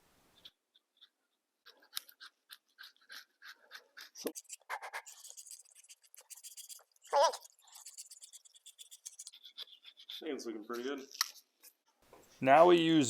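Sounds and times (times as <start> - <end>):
hand scraper scraping metal: 7.6 - 11.5.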